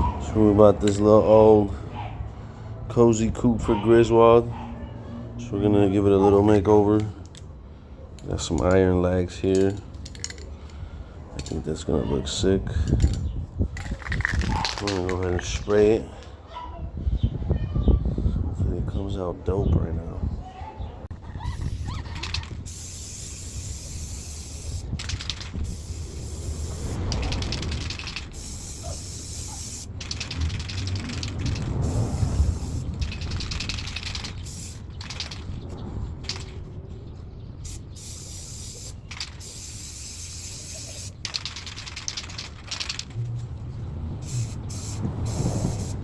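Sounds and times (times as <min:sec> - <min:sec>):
spray can rattling clicks: 0:09.5 - 0:10.5, 0:11.4 - 0:11.6, 0:12.9 - 0:13.2, 0:13.8 - 0:15.5, 0:21.5 - 0:36.6, 0:37.6 - 0:43.3, 0:44.2 - 0:46.0
spray can hissing: 0:21.4 - 0:35.6, 0:36.2 - 0:36.6, 0:37.6 - 0:43.2, 0:44.2 - 0:46.0.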